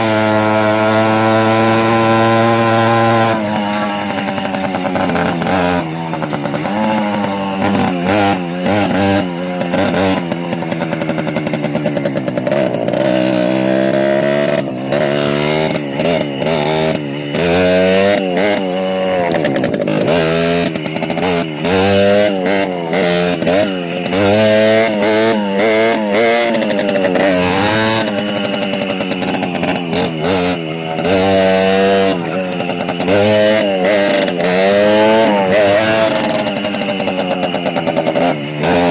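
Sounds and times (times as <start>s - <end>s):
small motorcycle engine revving: 0.0s - 38.9s.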